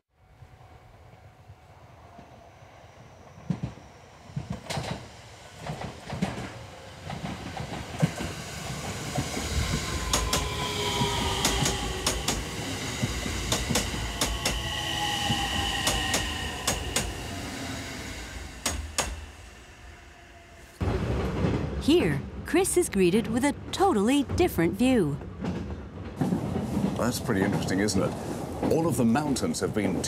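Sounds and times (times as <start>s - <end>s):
low train rumble: 0.2s - 30.0s
train wheels clicking over rail joints: 4.4s - 17.3s, 18.2s - 19.5s.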